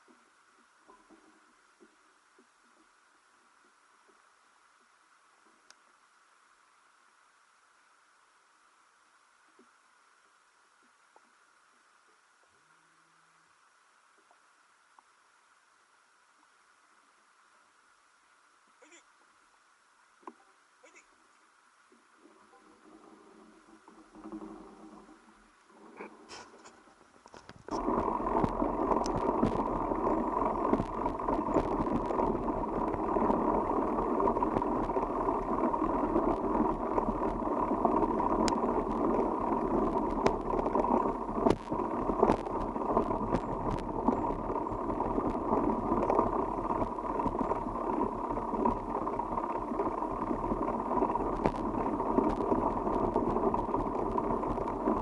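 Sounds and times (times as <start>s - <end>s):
bicycle tyres rolling: 22.3s - 55.0s
wind on microphone: 27.4s - 55.0s.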